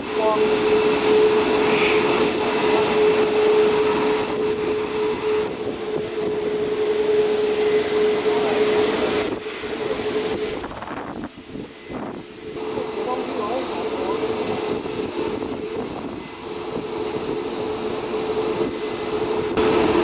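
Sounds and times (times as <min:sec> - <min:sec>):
jet engines rushing and droning: 0:00.0 - 0:20.0.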